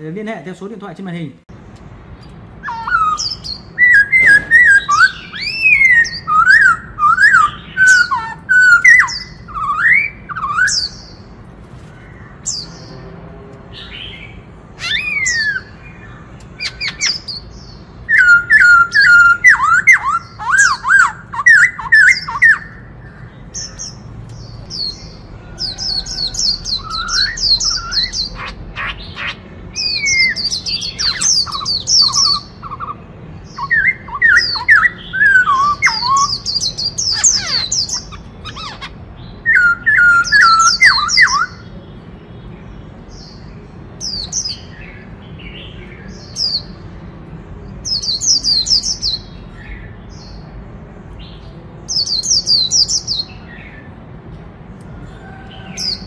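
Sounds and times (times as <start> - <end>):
bird singing whistled phrases: 2.6 - 11.2, 14.8 - 15.8, 18.1 - 22.9, 25.6 - 28.5, 33.6 - 41.6.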